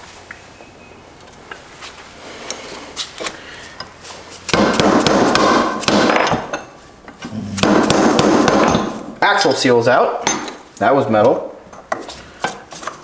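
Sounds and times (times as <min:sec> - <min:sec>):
rapid hammering on metal: 0:04.5 - 0:06.3, 0:07.6 - 0:09.0.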